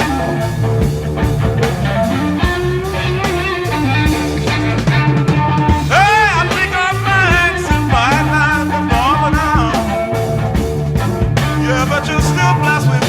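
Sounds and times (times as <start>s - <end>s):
high lead line with bent notes: 0.0s - 13.0s
psychedelic rock band playing: 0.0s - 13.0s.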